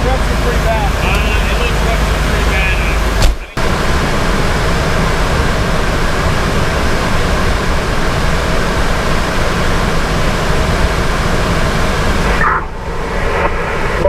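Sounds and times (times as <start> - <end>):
diesel engine rushing noise: 0.0 - 14.0.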